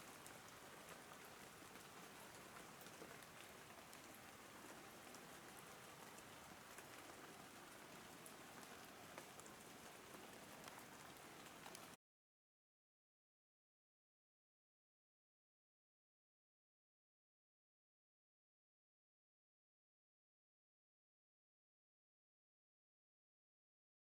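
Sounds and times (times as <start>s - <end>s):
faint rain drops ticking: 0.0s - 12.0s.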